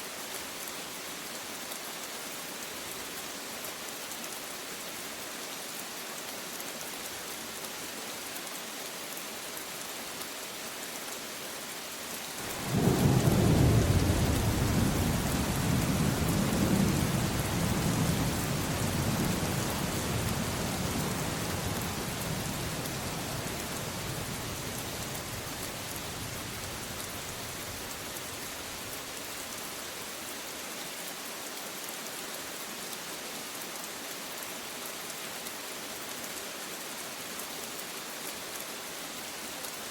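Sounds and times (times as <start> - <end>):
steady rain hiss: 0.0 - 39.9
deep thunder rumble: 12.5 - 25.4.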